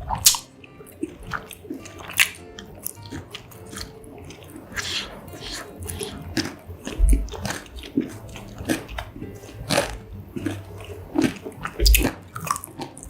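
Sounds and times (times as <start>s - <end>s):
crunching fried batter: 0.0s - 13.0s
wet chewing: 0.0s - 13.0s
low thumps: 4.5s - 12.5s.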